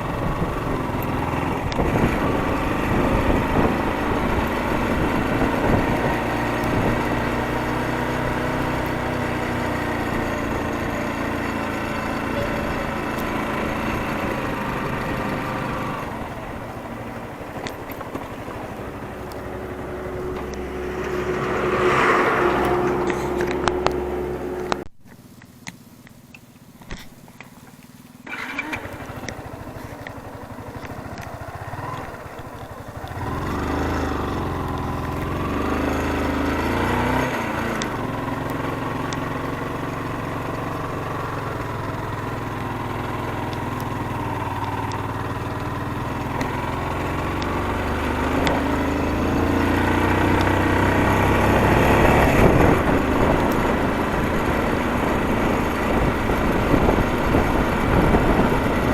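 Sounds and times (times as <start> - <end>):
motorcycle engine running: 0.0 - 58.9
clicks: 17.1 - 33.2.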